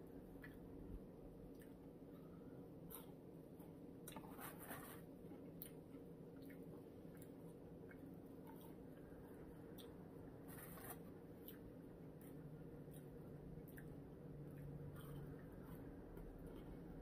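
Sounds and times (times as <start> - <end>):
low room hum: 0.0 - 17.0
crunchy chewing and mouth clicks: 0.2 - 17.0.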